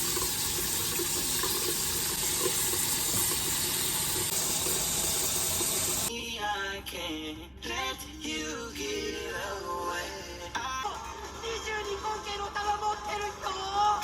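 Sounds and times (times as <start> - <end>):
running water: 0.0 - 6.1
music with singing: 6.1 - 14.0.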